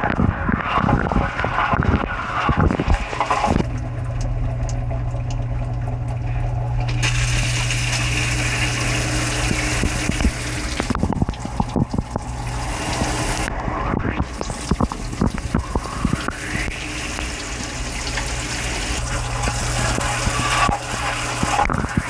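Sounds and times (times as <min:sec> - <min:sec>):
dishwasher pump humming: 0:00.0 - 0:22.0
droplet ticks: 0:03.6 - 0:05.9
water spraying and splashing: 0:06.9 - 0:13.6, 0:14.3 - 0:22.0.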